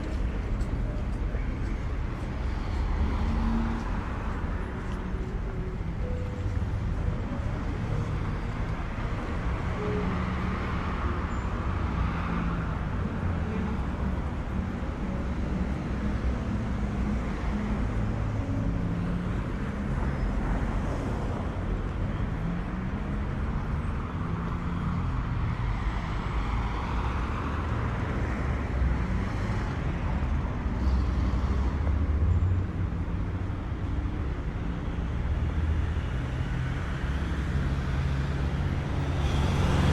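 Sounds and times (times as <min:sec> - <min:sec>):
low rumble of traffic: 0:00.0 - 0:39.9
cars passing close by: 0:34.4 - 0:39.9.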